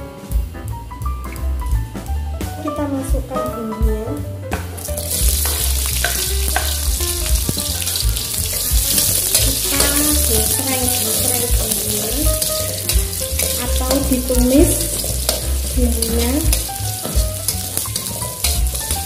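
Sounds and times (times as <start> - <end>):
aromatics sizzling in hot oil: 4.8 - 19.0
metal spatula scraping wok: 4.8 - 19.0.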